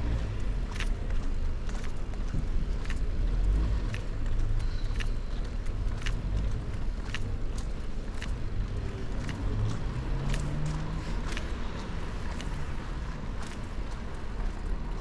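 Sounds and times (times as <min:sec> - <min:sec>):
road traffic rumbling: 0:00.0 - 0:15.0
footsteps: 0:00.6 - 0:15.0.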